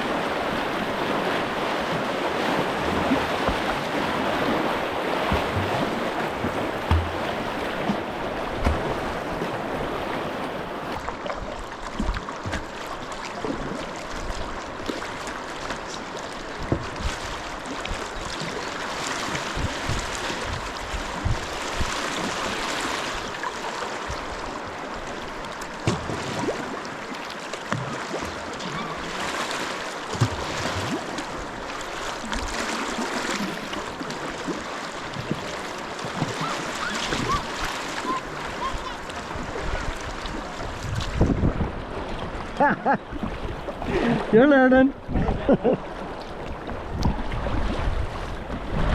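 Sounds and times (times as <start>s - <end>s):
river rushing: 0.0s - 11.2s, 17.3s - 45.1s
knocks and splashes: 0.0s - 44.3s.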